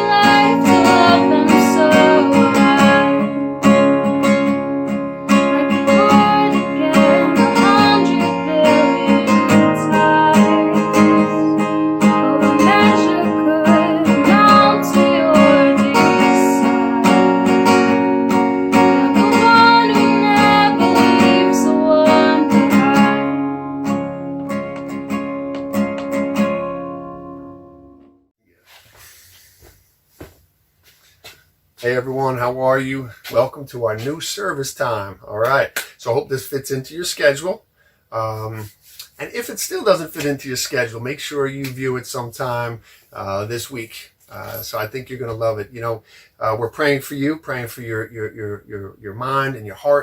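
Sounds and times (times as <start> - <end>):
person singing: 0.0 - 4.2, 5.4 - 18.1, 18.7 - 23.6
acoustic guitar strumming: 0.0 - 28.2.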